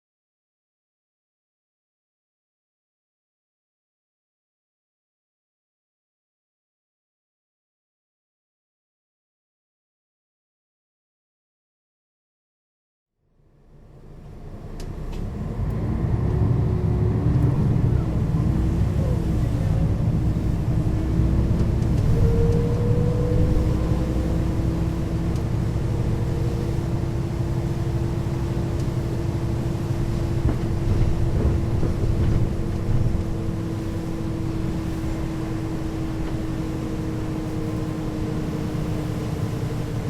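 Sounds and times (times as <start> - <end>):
bus engine rumble: 13.4 - 40.0.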